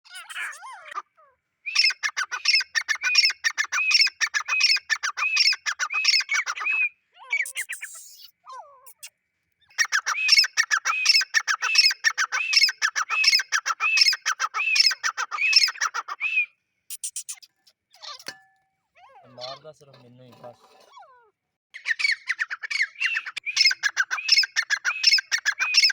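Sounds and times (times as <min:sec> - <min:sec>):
francolin calling: 0:01.7 - 0:07.9, 0:21.8 - 0:25.9.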